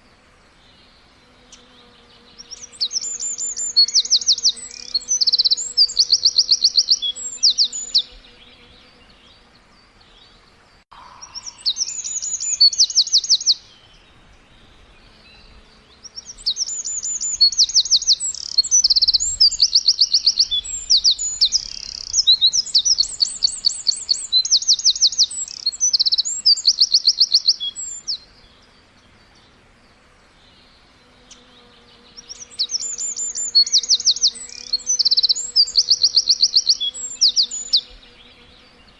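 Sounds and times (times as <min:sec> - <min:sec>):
birds trilling: 0:10.9 - 0:13.7.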